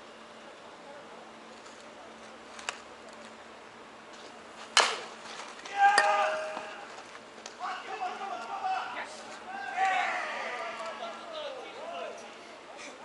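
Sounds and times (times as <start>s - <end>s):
baseball bat smack: 4.8s - 5.1s
high shout: 5.6s - 6.9s, 7.6s - 12.2s.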